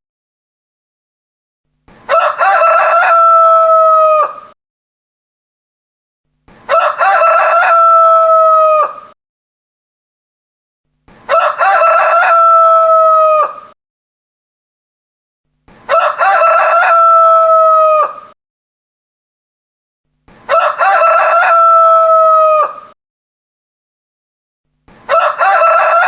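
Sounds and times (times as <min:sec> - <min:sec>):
rooster crowing: 0:02.1 - 0:04.6, 0:06.7 - 0:09.2, 0:11.3 - 0:13.8, 0:15.9 - 0:18.4, 0:20.5 - 0:23.0, 0:25.1 - 0:26.0.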